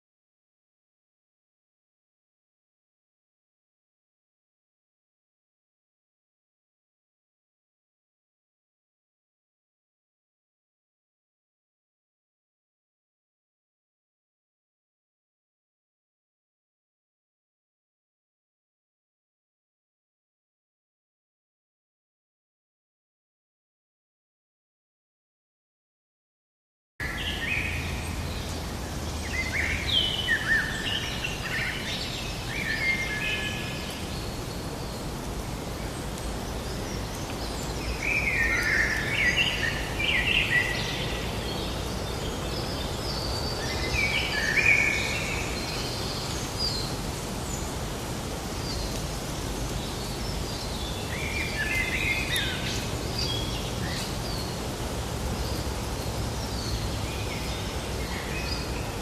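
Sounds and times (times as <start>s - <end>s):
songbirds chirping: 27.0s - 59.0s.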